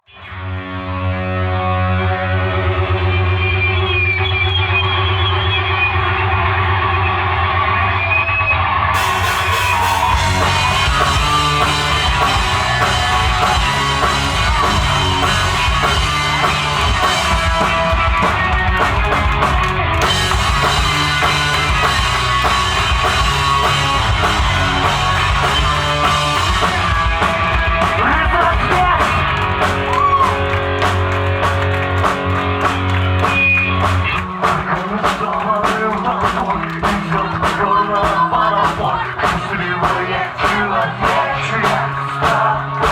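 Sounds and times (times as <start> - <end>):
rock band playing live: 0.4 - 8.1, 8.7 - 42.9
person singing: 34.4 - 42.9.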